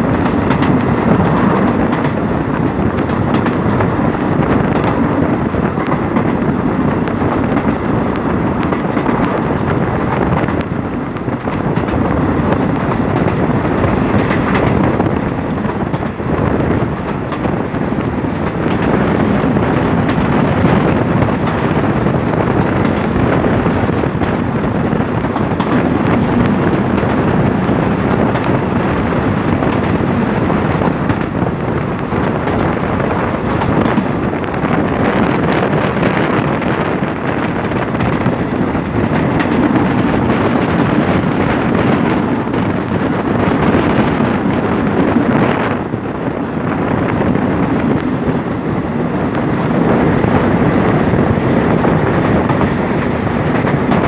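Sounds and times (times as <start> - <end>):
rushing air: 0.0 - 54.0
train wheels rumbling on rails: 0.0 - 54.0
wind buffeting microphone: 0.0 - 54.0.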